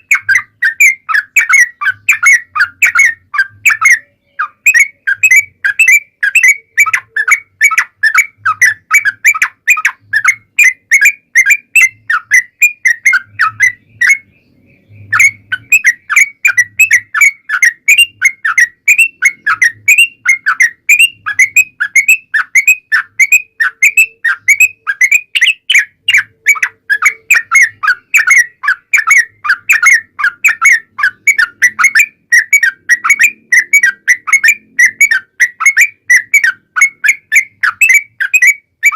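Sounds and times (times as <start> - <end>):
bird chattering song: 0.0 - 38.9.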